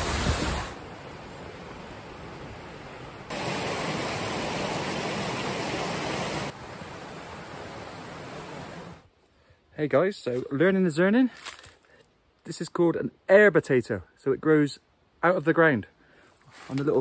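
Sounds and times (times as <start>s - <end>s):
waterfall rushing: 3.2s - 9.0s.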